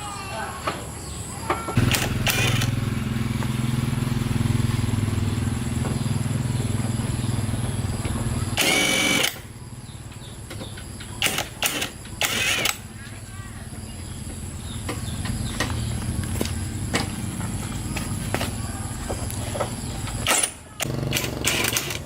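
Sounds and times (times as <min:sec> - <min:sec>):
engine humming: 0:00.1 - 0:22.0
sharp clicks: 0:01.8 - 0:02.8, 0:08.6 - 0:09.4, 0:10.1 - 0:12.9.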